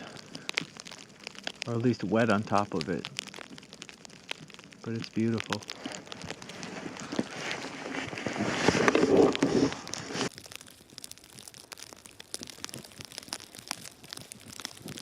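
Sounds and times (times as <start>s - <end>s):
crunching snow: 0.0s - 15.0s
falling snow ticks: 0.0s - 15.0s
winter clothing rustling: 5.2s - 10.4s.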